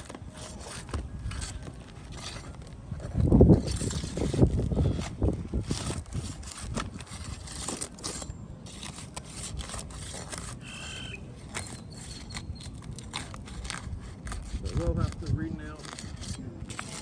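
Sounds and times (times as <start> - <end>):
roofing tool scraping and clicking: 0.0 - 17.0
brief high squeak: 10.6 - 13.3.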